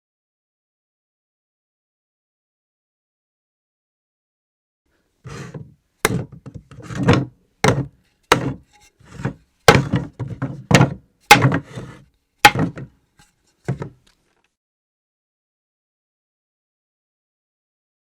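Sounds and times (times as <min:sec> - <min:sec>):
objects thudding on floor: 0:09.2 - 0:11.8, 0:12.5 - 0:12.9.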